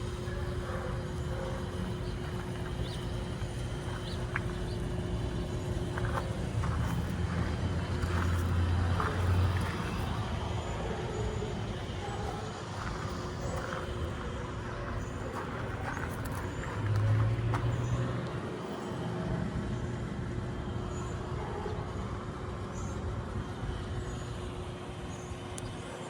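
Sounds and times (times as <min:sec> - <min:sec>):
car engine running: 0:00.0 - 0:18.8.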